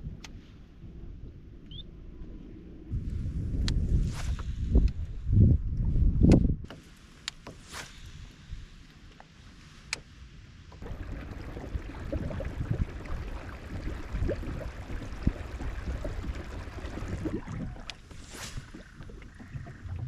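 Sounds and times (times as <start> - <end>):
water gurgling around kayak hull: 10.8 - 20.0.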